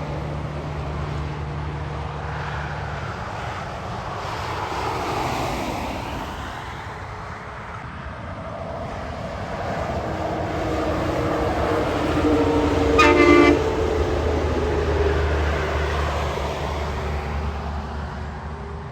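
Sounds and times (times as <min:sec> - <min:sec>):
heavy trucks passing: 0:00.0 - 0:06.8, 0:08.2 - 0:18.9
truck horn blast: 0:12.1 - 0:14.1.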